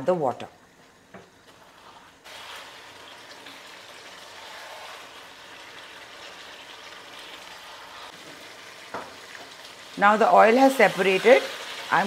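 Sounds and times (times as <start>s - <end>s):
spatula stirring in wok: 1.5s - 8.5s
curry sizzling in oil: 1.6s - 12.0s.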